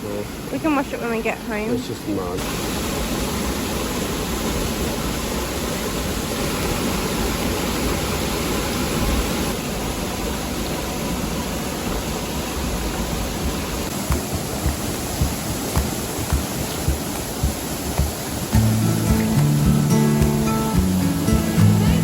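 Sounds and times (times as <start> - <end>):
waterfall pouring: 0.0 - 22.0
soft knocks: 13.9 - 18.7.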